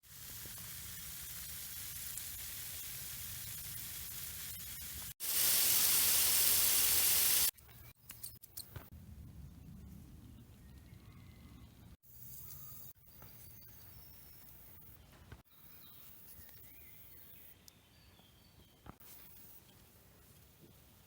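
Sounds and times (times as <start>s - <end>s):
water hissing from leak: 0.0s - 7.5s.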